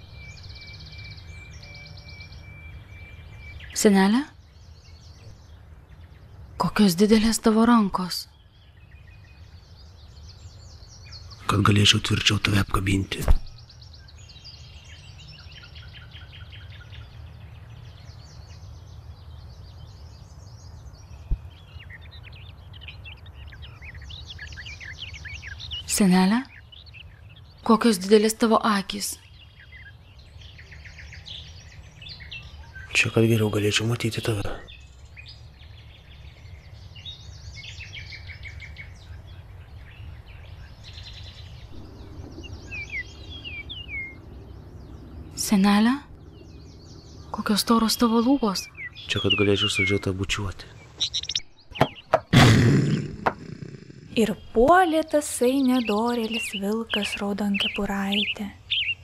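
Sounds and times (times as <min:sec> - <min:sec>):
small birds chirping: 0:00.0 - 0:59.0
low background rumble: 0:34.5 - 0:49.2
downward-slurred bird whistles: 0:41.2 - 0:45.4.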